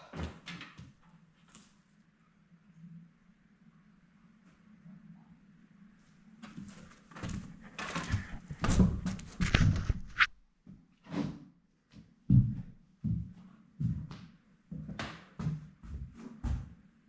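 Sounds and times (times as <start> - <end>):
objects knocking and scraping: 7.6 - 10.3.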